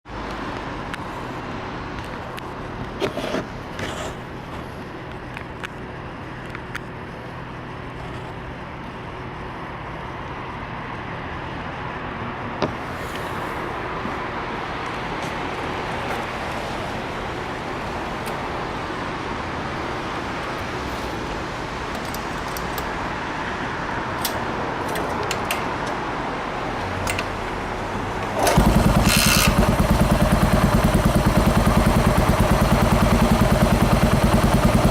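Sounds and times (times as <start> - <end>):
motorcycle engine running: 28.4 - 34.9.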